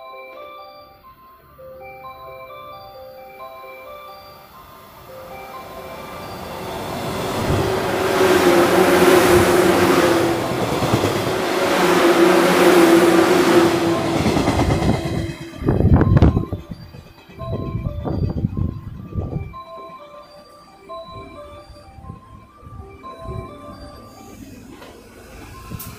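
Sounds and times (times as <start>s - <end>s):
electric train passing at speed: 0.0s - 25.9s
low rumbling: 6.0s - 16.4s.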